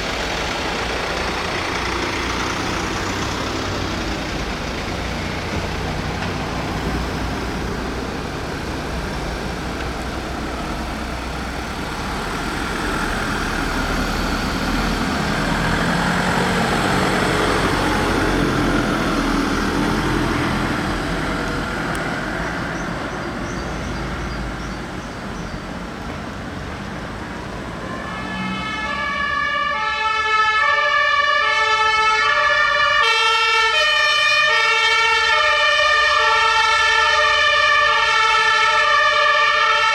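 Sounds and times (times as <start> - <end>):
fire engine rumbling: 0.0 - 39.9
two-tone siren: 27.7 - 39.9.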